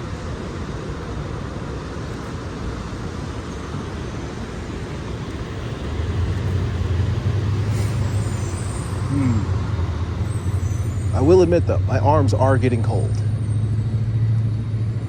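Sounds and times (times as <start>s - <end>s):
city traffic noise: 0.0s - 15.0s
heavy vehicle rumble: 0.0s - 15.0s.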